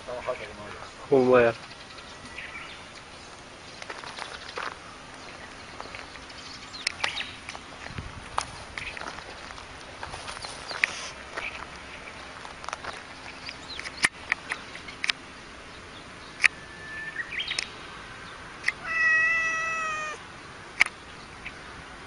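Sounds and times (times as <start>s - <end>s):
sharp clicks: 17.5s - 17.7s, 20.8s - 21.0s
cat meowing: 18.8s - 20.2s.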